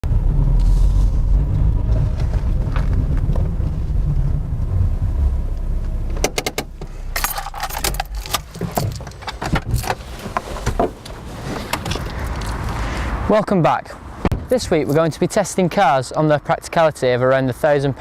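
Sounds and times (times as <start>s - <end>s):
car rumbling: 0.0s - 16.0s
light metallic jangling: 7.1s - 10.0s.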